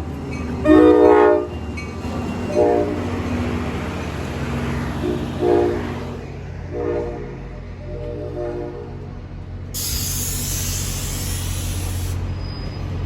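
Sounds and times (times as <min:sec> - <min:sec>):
passing train rumble: 0:00.0 - 0:13.0
locomotive horn blasts: 0:00.6 - 0:01.6, 0:02.4 - 0:03.3, 0:04.9 - 0:09.0.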